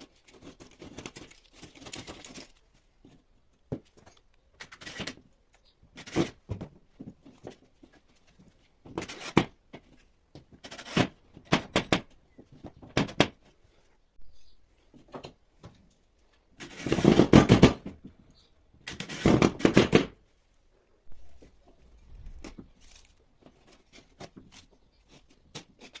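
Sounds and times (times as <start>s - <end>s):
tool scraping plasterboard wall: 16.6s - 17.8s, 18.9s - 20.1s.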